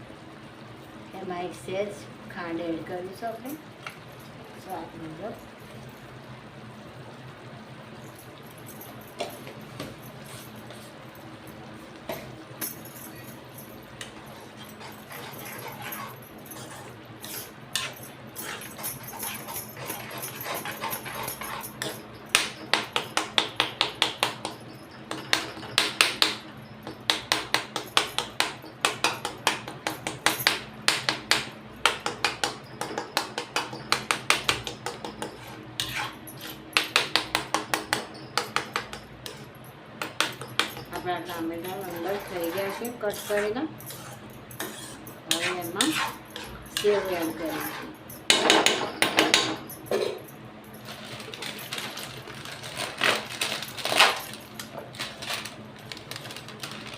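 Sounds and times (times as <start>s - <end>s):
metal spoon scraping a pan: 14.0s - 22.7s, 34.9s - 36.6s, 40.4s - 49.1s.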